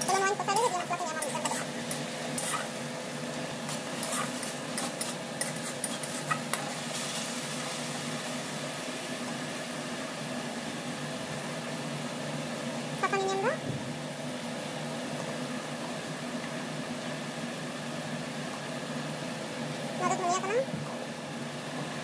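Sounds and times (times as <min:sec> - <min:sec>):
paste sizzling in a pan: 0:03.6 - 0:08.6.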